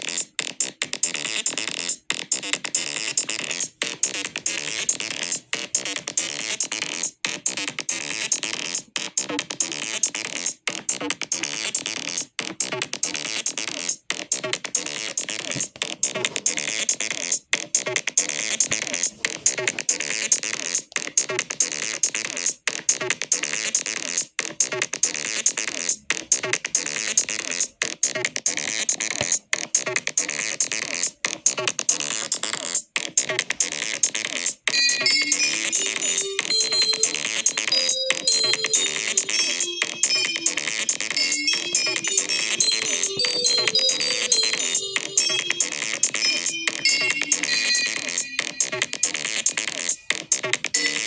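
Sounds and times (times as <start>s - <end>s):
electronic synthesizer music: 34.7s - 49.7s, 50.8s - 51.0s.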